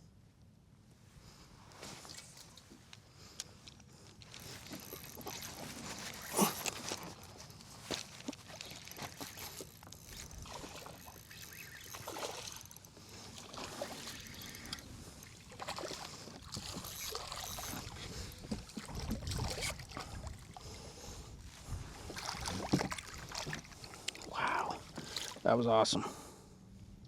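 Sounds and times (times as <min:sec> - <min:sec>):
water splashing around kayak: 0:04.3 - 0:25.5.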